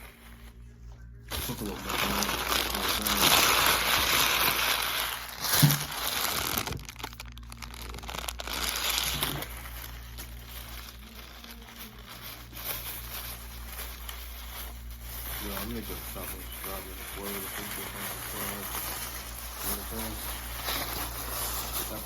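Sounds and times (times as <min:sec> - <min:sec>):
wrapper crumpling and crinkling: 0:01.3 - 0:22.0.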